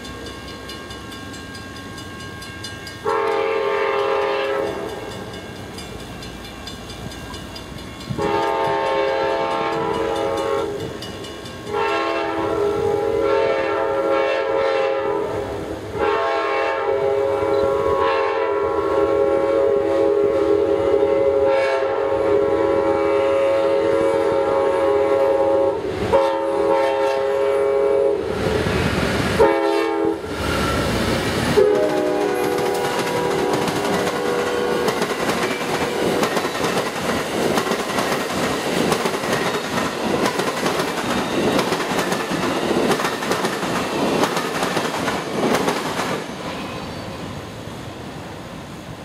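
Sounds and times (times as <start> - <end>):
train rumble and wheel clatter: 0.0 - 49.0
train horn blasts: 3.0 - 5.2, 8.1 - 10.9, 11.7 - 28.4, 29.4 - 30.4, 31.6 - 35.0.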